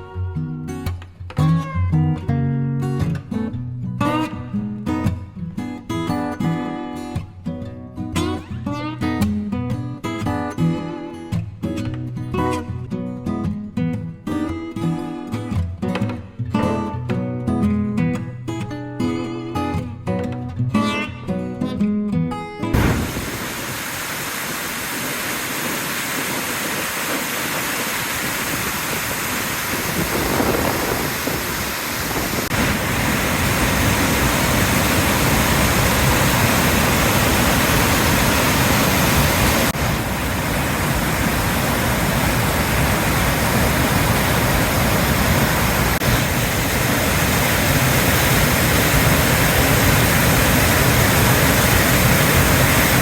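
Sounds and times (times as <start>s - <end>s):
floodwater rushing over dam: 22.8s - 53.0s.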